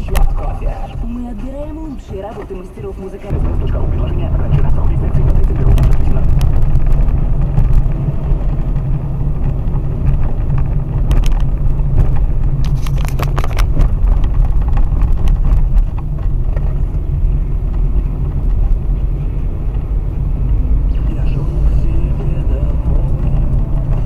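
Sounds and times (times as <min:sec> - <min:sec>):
tyres rumbling on rough road: 0:00.0 - 0:24.0
car knocks and rattles over bumps: 0:01.6 - 0:24.0.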